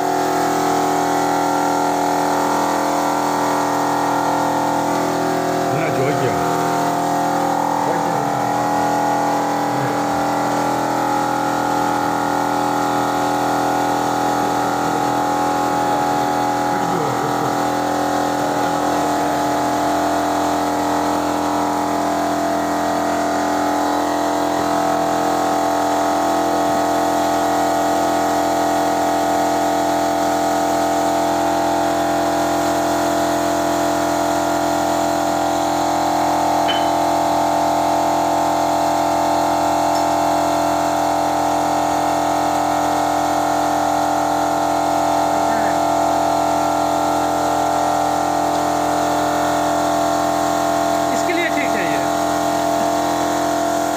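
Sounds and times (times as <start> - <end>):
motor-driven machine whining: 0.1 - 26.6.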